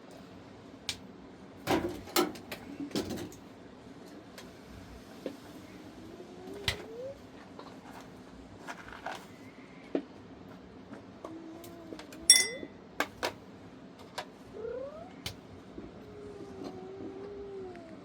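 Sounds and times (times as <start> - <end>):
ringing metallic clink: 12.3 - 12.8.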